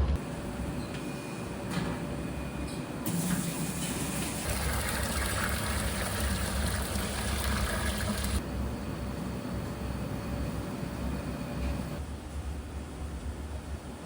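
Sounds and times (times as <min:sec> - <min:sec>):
water running from a tap: 0:03.1 - 0:08.4.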